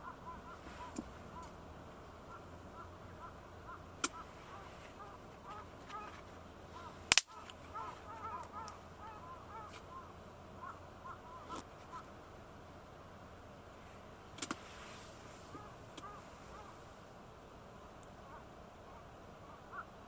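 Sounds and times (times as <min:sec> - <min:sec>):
flock of birds honking: 0:00.0 - 0:12.2, 0:15.3 - 0:17.1, 0:17.8 - 0:20.0
loud sharp crack: 0:07.1 - 0:07.4.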